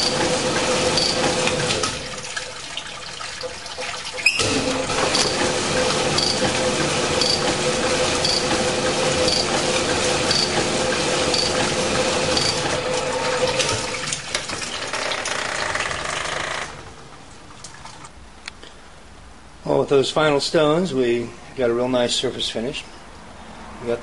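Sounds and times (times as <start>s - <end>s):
honing machine hum: 0.0s - 2.0s, 4.4s - 13.7s.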